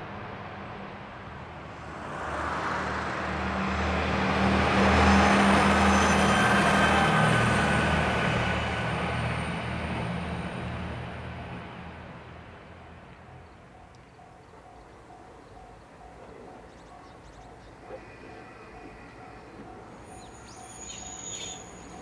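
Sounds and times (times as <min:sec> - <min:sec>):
train engine hum: 0:00.0 - 0:22.0.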